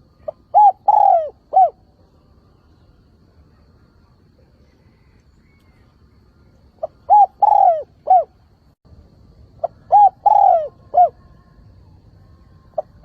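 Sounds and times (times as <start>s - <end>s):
dove cooing: 0.0s - 1.8s, 6.8s - 8.4s, 9.6s - 11.6s.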